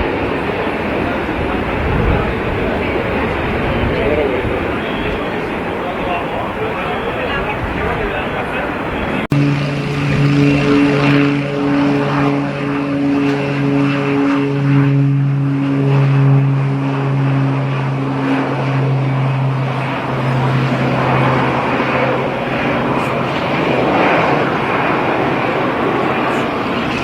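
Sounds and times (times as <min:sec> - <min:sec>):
propeller airplane engines droning: 0:00.0 - 0:27.0
loud rushing noise: 0:09.0 - 0:27.0.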